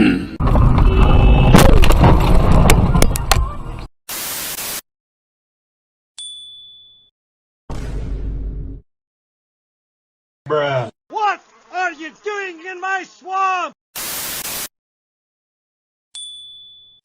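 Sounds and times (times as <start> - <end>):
vehicle crash: 0.4 - 3.6
burst of static: 4.1 - 4.8, 14.0 - 14.7
high ding: 6.2 - 7.1, 16.2 - 17.0.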